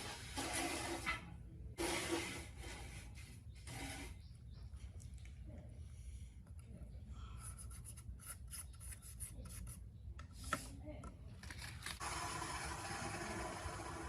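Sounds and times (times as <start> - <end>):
rubbing and scraping: 0.0 - 4.4.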